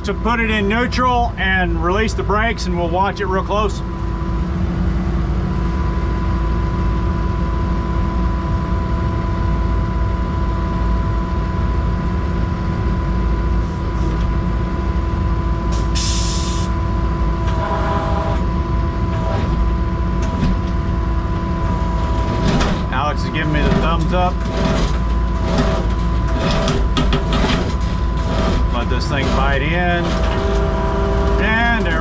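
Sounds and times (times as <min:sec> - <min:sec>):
diesel engine running with whine: 0:00.0 - 0:32.0
sharp hiss of air: 0:15.8 - 0:16.7.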